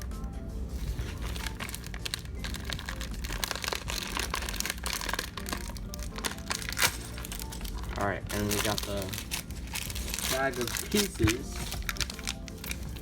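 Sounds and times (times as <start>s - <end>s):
background music: 0.0s - 13.0s
packaging crinkling and rustling: 0.8s - 13.0s.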